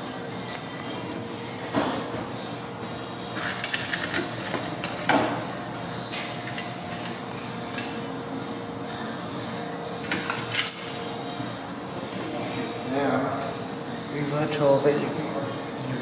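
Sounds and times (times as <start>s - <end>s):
steady background hum: 0.0s - 16.0s
metal parts and tools clinking: 10.0s - 11.1s.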